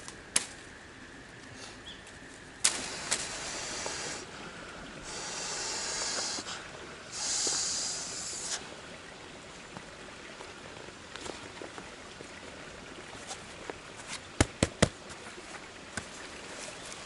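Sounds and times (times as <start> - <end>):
breathy hissing: 2.7 - 8.8.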